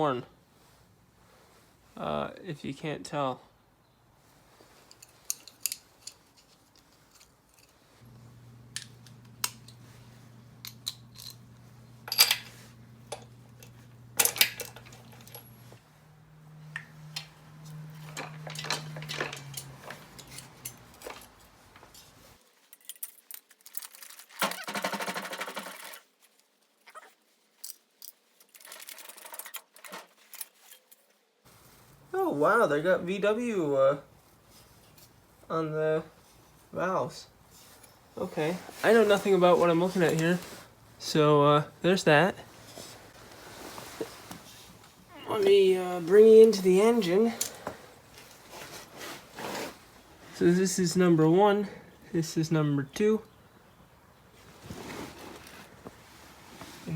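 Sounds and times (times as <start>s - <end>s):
metal parts and tools clinking: 4.8s - 7.9s, 10.6s - 15.7s, 17.0s - 26.5s, 27.6s - 31.2s
low steady hum: 6.8s - 21.3s.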